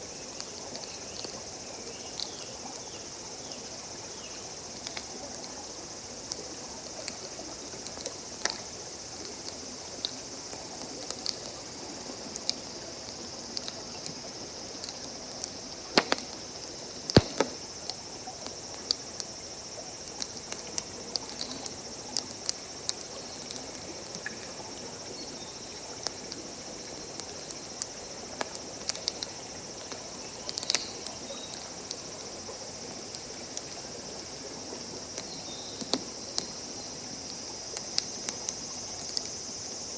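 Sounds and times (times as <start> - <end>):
insects chirring: 0.0 - 39.9
campfire crackling and popping: 15.8 - 18.0.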